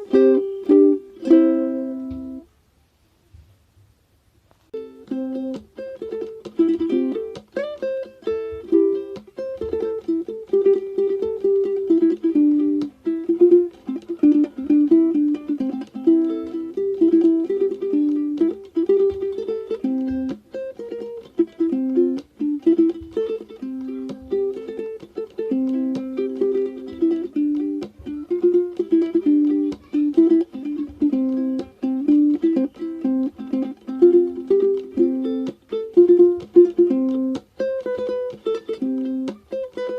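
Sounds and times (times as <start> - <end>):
bouncy plucked-string tune: 0.0 - 2.5, 4.7 - 39.9.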